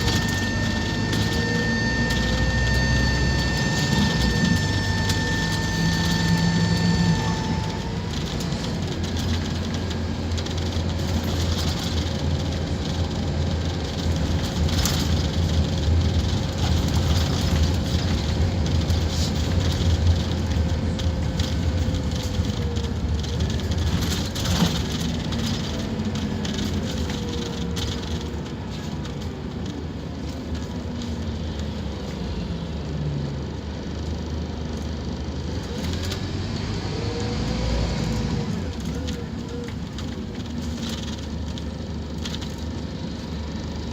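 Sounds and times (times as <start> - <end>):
thin whine: 0.0 - 8.6
diesel bus engine drone: 0.0 - 43.9.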